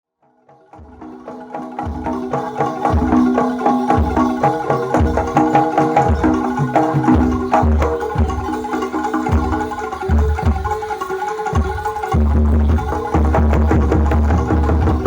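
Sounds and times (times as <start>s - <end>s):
ringing gamelan notes: 0.5s - 15.0s
deep drum beat: 0.8s - 8.6s, 12.2s - 15.0s.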